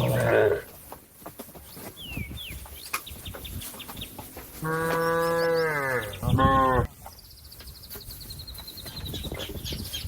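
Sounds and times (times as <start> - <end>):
cow mooing: 4.6 - 6.9.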